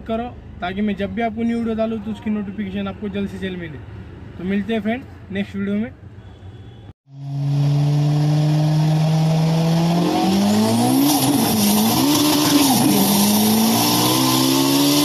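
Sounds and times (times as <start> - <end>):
sports car engine revving: 7.1 - 15.0.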